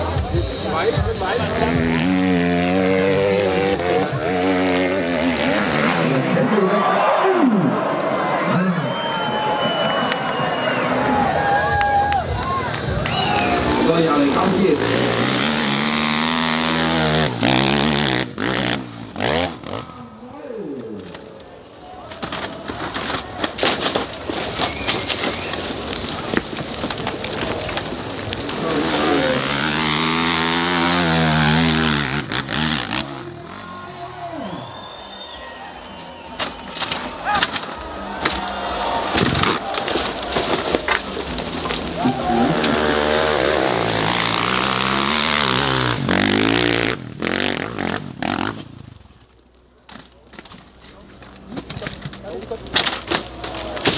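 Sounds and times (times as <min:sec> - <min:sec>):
dirt bike engine at full throttle: 0:00.0 - 0:06.6, 0:13.2 - 0:20.1, 0:28.4 - 0:34.0, 0:42.2 - 0:49.0
dense crackling with sharp clicks: 0:20.9 - 0:29.4.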